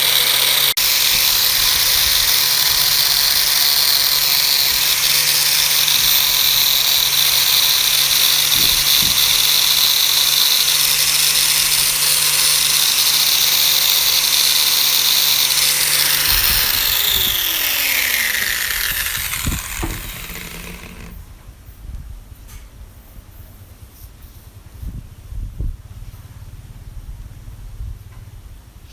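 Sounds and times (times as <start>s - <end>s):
electric power tool running: 0.0s - 21.2s
motor winding down whine: 0.0s - 21.2s.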